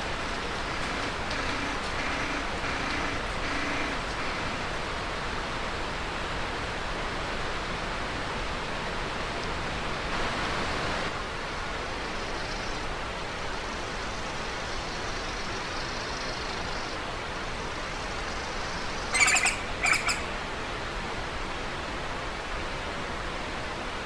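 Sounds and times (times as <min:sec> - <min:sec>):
steady hiss: 0:00.0 - 0:06.5.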